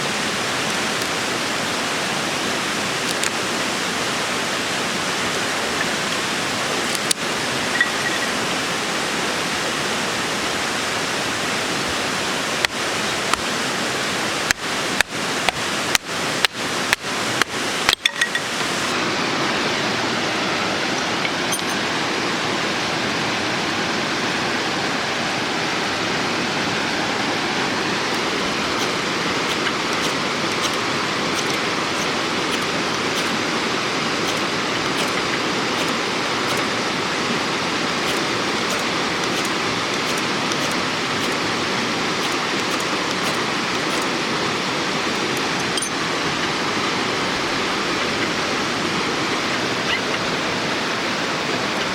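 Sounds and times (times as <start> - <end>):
mountain stream rushing: 0.0 - 51.9
sharp clicks: 6.9 - 7.2, 28.1 - 33.4, 38.0 - 41.6, 42.2 - 44.2.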